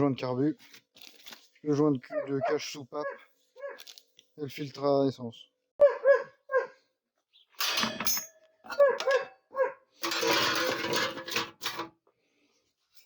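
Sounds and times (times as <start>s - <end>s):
ringing metallic clinks: 7.6s - 9.2s
rough metal scrape: 10.0s - 12.0s.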